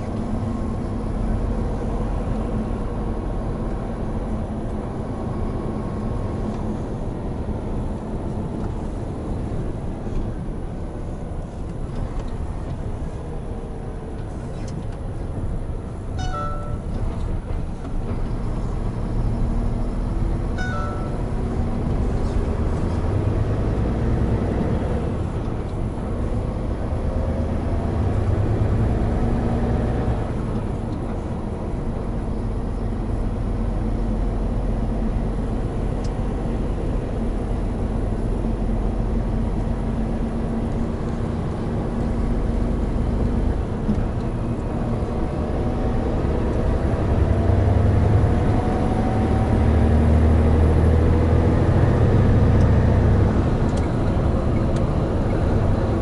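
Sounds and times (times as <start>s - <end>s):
road noise: 0.0s - 56.0s
truck diesel engine: 0.0s - 56.0s.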